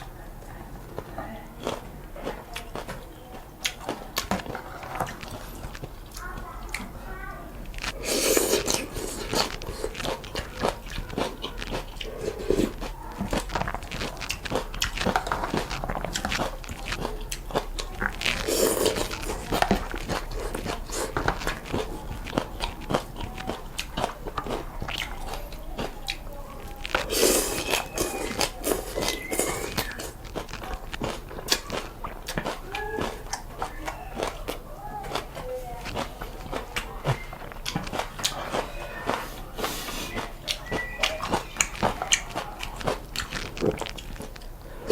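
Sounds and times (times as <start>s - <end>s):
wet chewing: 0.0s - 44.9s
noodle slurps: 7.8s - 16.6s, 17.5s - 22.5s, 26.7s - 32.2s
mouth clicks: 7.8s - 44.9s.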